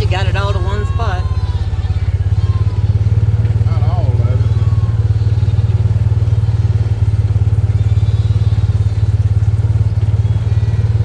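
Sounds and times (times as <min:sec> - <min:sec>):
engine throbbing at low speed: 0:00.0 - 0:11.0.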